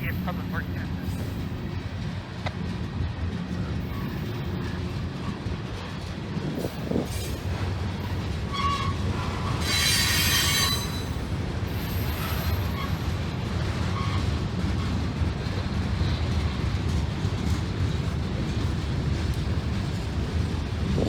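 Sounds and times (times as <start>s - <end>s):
freight train rumbling: 0.0s - 21.0s
train wheels squealing: 3.6s - 5.4s, 8.0s - 15.0s.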